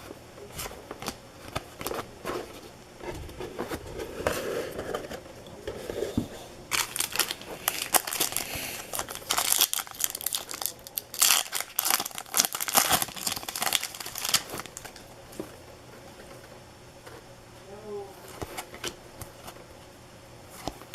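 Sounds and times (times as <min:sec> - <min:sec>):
wrappers torn and crinkled: 0:06.7 - 0:15.0.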